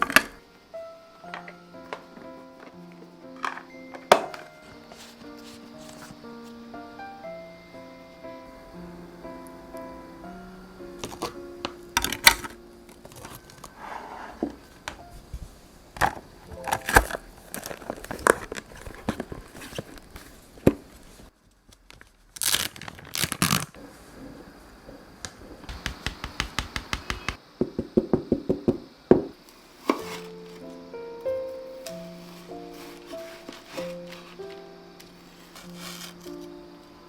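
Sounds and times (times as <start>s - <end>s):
plastic packaging crinkling: 16.5s - 23.8s, 29.4s - 30.8s, 31.5s - 36.5s.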